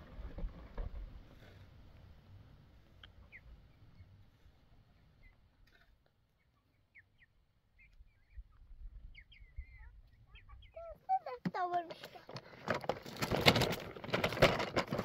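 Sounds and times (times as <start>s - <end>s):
faint bird chirps: 3.1s - 4.2s, 6.3s - 11.3s.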